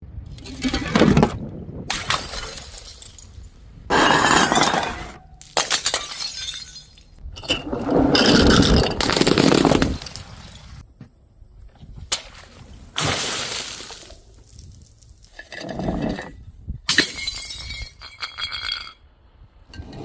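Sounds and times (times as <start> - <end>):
glass bottles smashing: 1.9 - 7.5, 8.1 - 10.8, 16.9 - 19.0.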